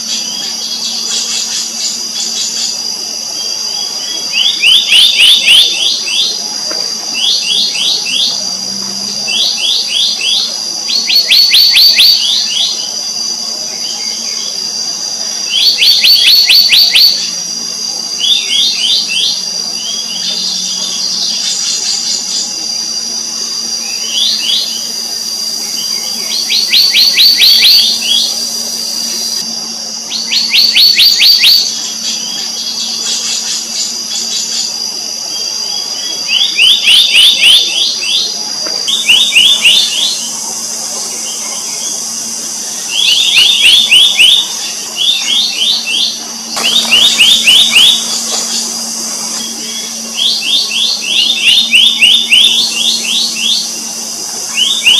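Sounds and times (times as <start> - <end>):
high-pitched drone: 0.0 - 54.9
bird whistling short downward notes: 42.9 - 53.8.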